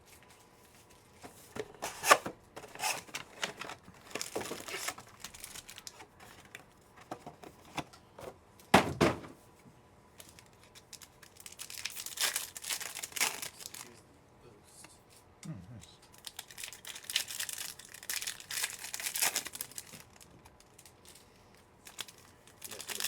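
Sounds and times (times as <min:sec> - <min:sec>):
plastic wrappers crinkling: 0:01.2 - 0:07.8, 0:10.2 - 0:14.0, 0:16.2 - 0:23.0.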